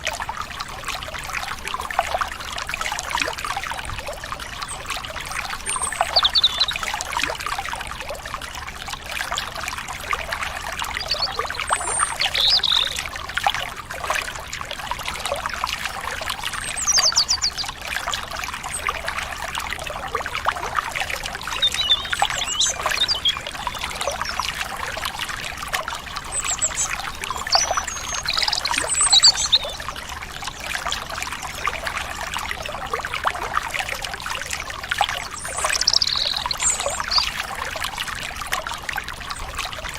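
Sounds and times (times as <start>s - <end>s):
stream water babbling: 0.0s - 39.9s
bird chirps and whistles: 5.7s - 6.8s, 11.0s - 13.0s, 16.8s - 17.6s, 21.5s - 24.4s, 26.4s - 29.8s, 35.3s - 37.3s.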